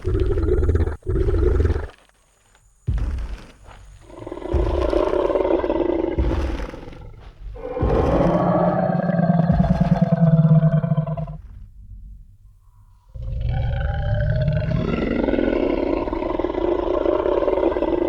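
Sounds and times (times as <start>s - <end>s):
dinosaur roar: 0.0s - 2.0s, 4.0s - 12.3s, 13.1s - 18.0s
heavy low hits: 4.0s - 11.4s.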